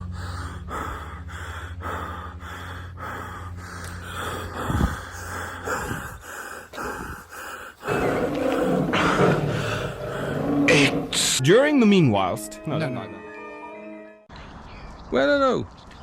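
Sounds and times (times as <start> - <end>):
heavy rhythmic breathing: 0.0 - 11.4.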